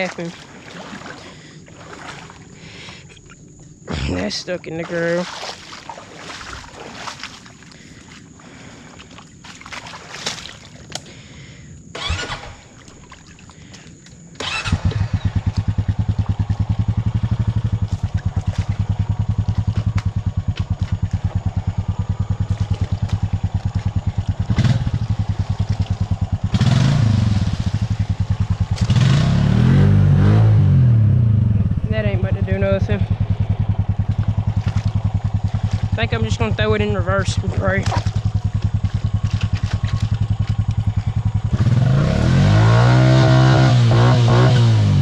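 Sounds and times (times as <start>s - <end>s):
atv engine starting and revving: 11.9s - 12.8s, 14.4s - 45.0s.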